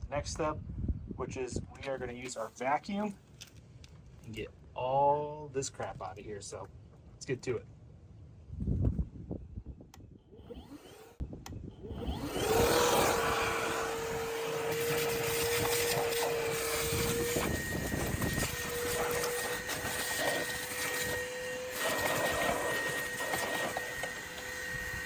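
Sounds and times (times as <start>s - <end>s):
vacuum cleaner whine: 10.4s - 25.0s.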